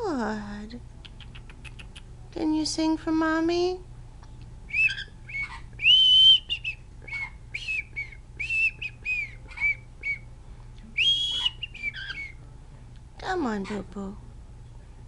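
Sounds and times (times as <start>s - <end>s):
cockatiel whistling: 4.7s - 10.3s, 11.0s - 12.4s.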